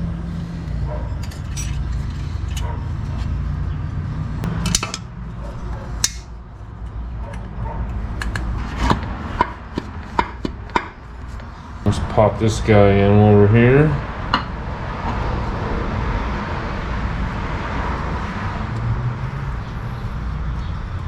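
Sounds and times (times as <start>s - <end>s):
metal parts clinking and knocking: 1.2s - 2.8s, 4.5s - 5.1s.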